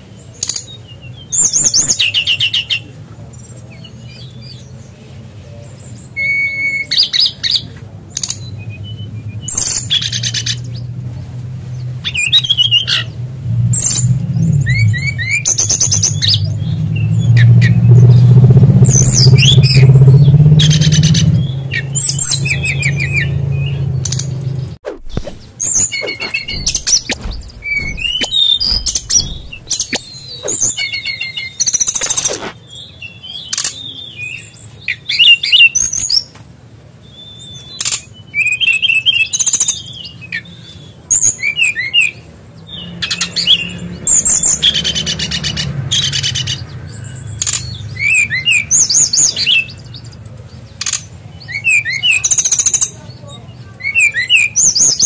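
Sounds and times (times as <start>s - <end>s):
songbird singing: 13.8s - 31.0s, 31.8s - 35.0s.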